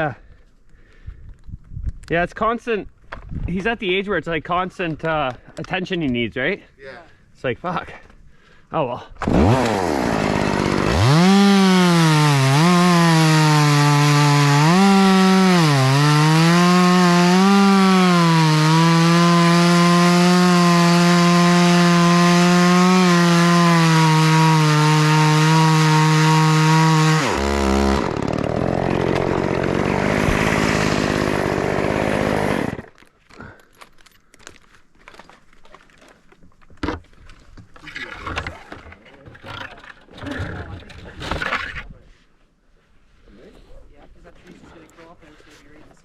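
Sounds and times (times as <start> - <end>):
chainsaw revving: 9.2 - 33.0.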